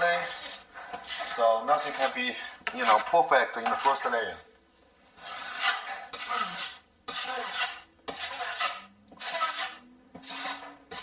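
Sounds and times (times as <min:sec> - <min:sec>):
joint knife scraping compound: 0:05.2 - 0:11.0.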